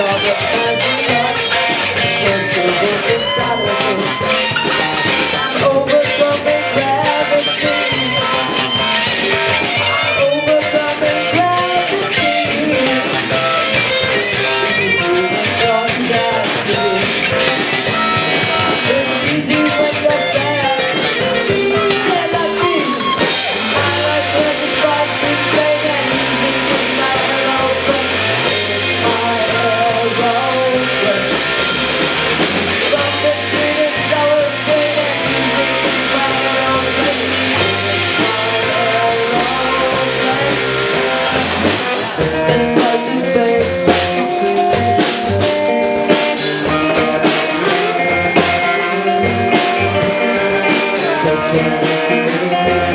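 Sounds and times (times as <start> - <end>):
bass line: 0.0 - 52.9
person singing: 0.0 - 52.9
rock band playing: 0.0 - 52.9.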